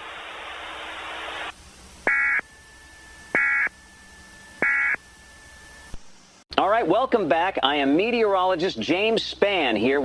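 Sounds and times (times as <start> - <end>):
radio hiss: 0.0 - 6.0
short electronic data tone bursts: 2.0 - 5.6.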